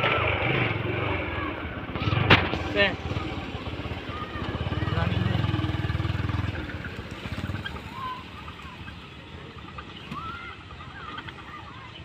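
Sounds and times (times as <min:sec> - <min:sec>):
motorcycle engine: 0:00.0 - 0:12.0
bird calls: 0:03.0 - 0:12.0.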